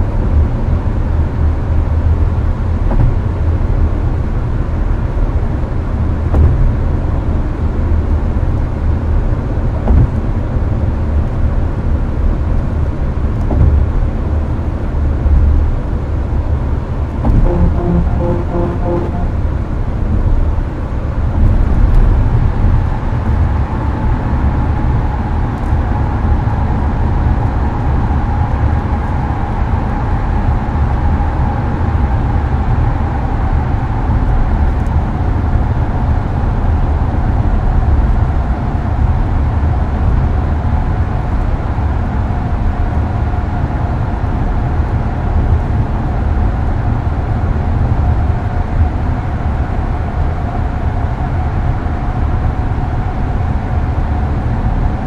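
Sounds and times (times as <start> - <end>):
air-conditioner fan noise: 0.0 - 17.3, 20.7 - 55.0
tyre and road rumble: 9.7 - 10.7
faint whine: 17.2 - 19.8.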